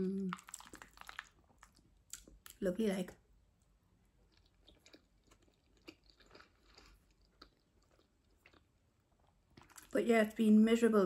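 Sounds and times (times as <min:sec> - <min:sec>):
chewing food: 0:00.3 - 0:02.6, 0:04.2 - 0:10.0.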